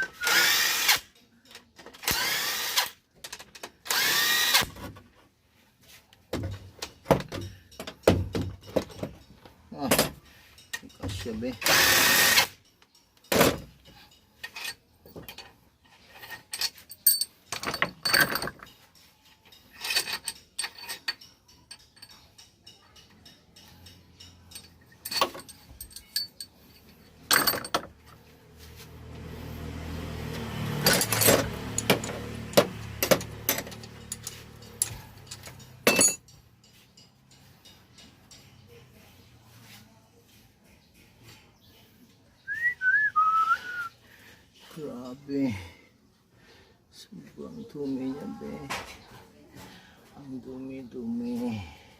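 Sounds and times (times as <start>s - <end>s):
metal tools clinking and knocking: 6.3s - 29.3s, 30.3s - 39.1s.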